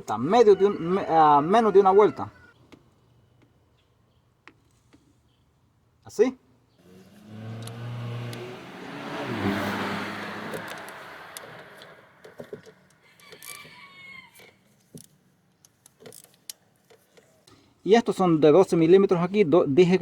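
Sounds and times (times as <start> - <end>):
passing motor vehicle: 6.8 - 13.0
hand tools clicking on engine: 7.5 - 8.5, 10.5 - 13.6.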